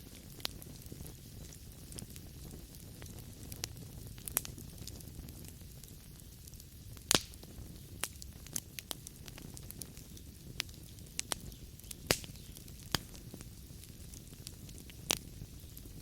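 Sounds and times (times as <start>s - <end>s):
logs burning in a fireplace: 0.0s - 16.0s.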